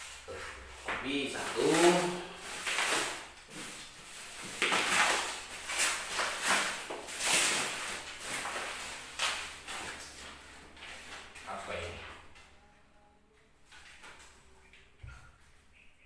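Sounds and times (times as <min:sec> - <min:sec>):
packaging rustling and crinkling: 0:01.1 - 0:11.8.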